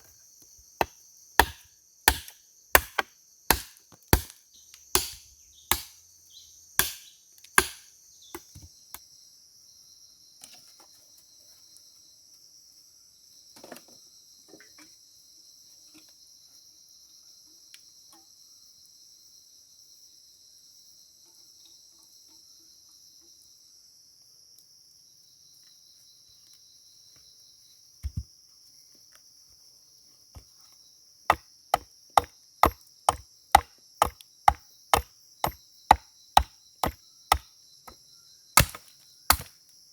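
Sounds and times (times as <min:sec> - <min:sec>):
insects chirring: 0:00.0 - 0:39.9
wood being chopped: 0:00.8 - 0:04.4, 0:05.0 - 0:06.0, 0:06.8 - 0:08.7, 0:31.3 - 0:37.4, 0:38.6 - 0:39.6.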